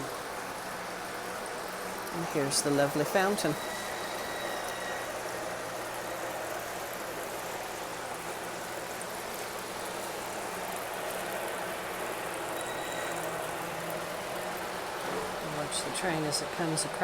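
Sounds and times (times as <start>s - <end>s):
garden fountain splashing: 0.0s - 4.3s, 5.1s - 17.0s.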